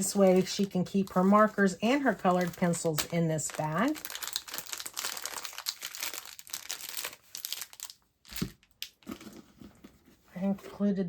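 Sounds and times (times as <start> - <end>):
packaging crinkling: 2.0 - 9.5.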